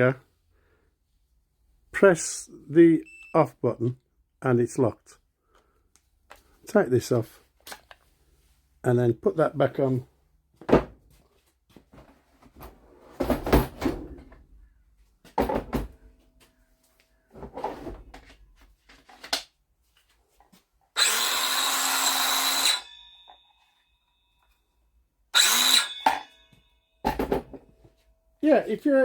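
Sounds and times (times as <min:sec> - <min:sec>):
edge trimmer motor whining: 0:21.0 - 0:23.3, 0:25.4 - 0:26.3.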